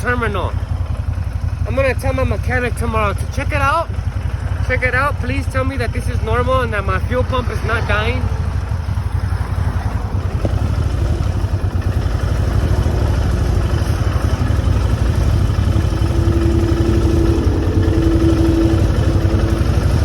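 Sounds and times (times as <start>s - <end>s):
motorcycle engine idling: 0.0s - 20.0s
thin steady whine: 12.6s - 20.0s.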